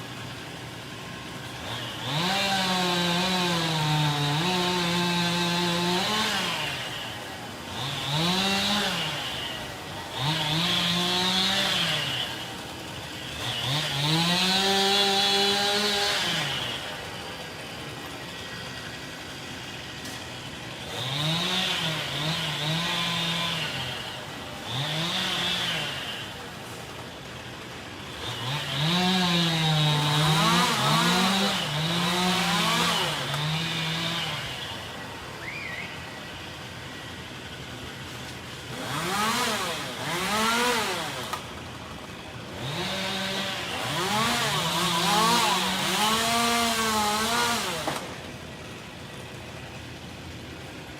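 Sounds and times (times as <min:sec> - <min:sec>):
chainsaw revving: 0:00.0 - 0:50.9.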